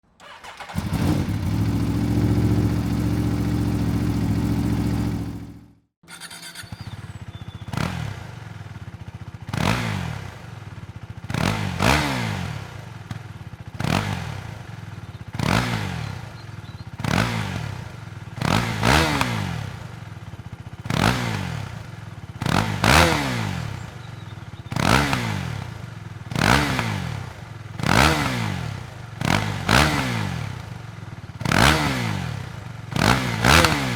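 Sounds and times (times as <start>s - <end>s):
quick throttle blips: 0.2s - 8.3s, 33.0s - 33.9s
motorcycle engine droning: 0.2s - 33.9s
motorcycle engine idling: 0.6s - 33.9s.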